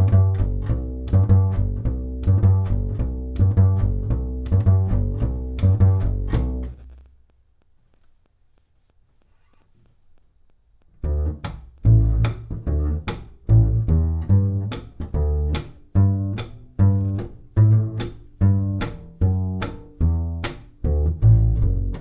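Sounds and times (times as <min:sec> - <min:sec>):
plucked double bass: 0:00.0 - 0:07.1, 0:11.0 - 0:22.0.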